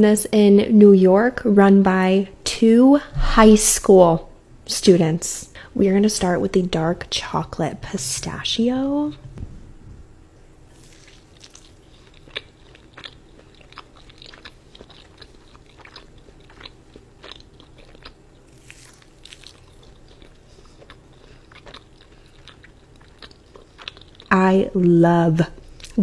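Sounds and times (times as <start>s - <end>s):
cookie crunching: 10.7s - 24.4s.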